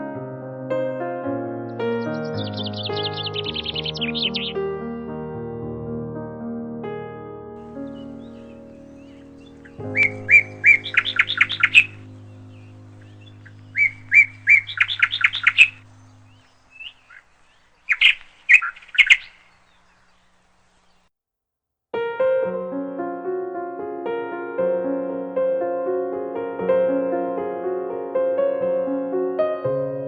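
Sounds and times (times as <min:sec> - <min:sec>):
piano tune: 0:00.0 - 0:17.2, 0:22.0 - 0:30.0
songbird singing trills: 0:01.7 - 0:04.7, 0:07.6 - 0:21.1
sustained music: 0:07.6 - 0:16.5.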